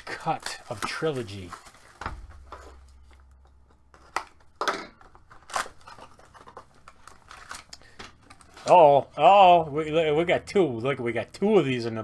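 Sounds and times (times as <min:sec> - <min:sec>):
snips and rips of wrapping: 0:05.4 - 0:08.8.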